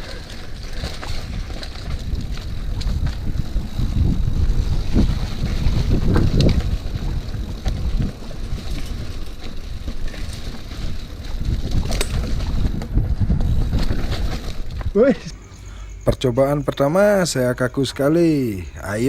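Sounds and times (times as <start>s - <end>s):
tyre rumble on dirt: 0.0s - 15.3s
bike clicks and rattles: 0.0s - 15.7s
wind buffeting microphone: 0.0s - 16.0s.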